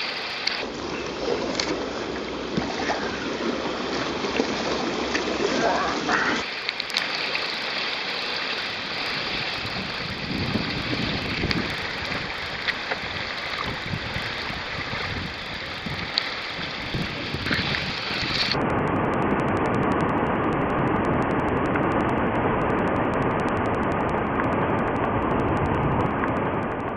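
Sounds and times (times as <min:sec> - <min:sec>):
water splashes: 0:00.0 - 0:18.6
water rushing over a weir: 0:00.0 - 0:26.9
wind buffeting microphone: 0:08.5 - 0:26.9.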